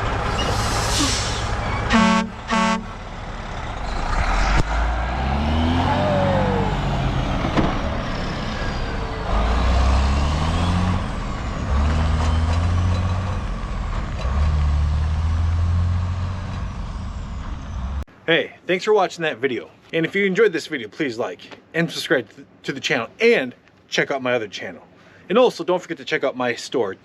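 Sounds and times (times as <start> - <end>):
truck engine accelerating: 0.0 - 18.1
truck horn toot: 0.4 - 3.0.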